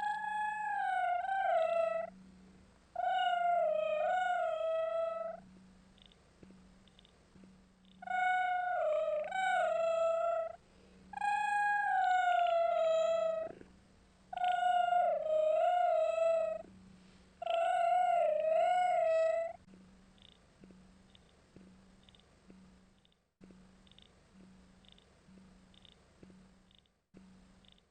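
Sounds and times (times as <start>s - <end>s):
cat meowing: 3.0s - 5.4s.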